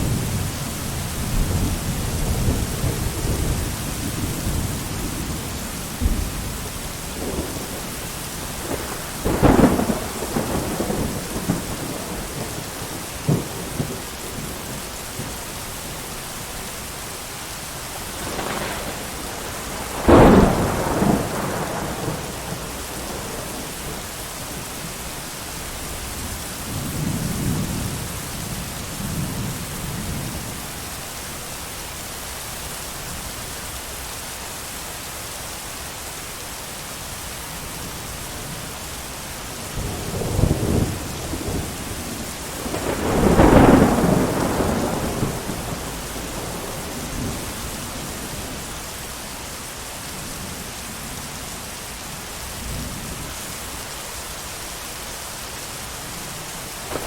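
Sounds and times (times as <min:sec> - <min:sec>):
thunder: 0:00.0 - 0:15.3, 0:18.1 - 0:24.7, 0:39.6 - 0:48.6
heavy rain: 0:00.0 - 0:57.0.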